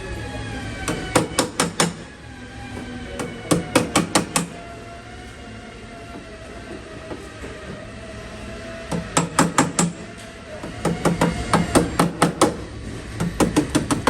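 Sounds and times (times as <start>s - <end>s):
hammer striking steel panel: 0.9s - 2.0s, 3.2s - 4.6s, 8.9s - 10.1s, 10.7s - 14.0s.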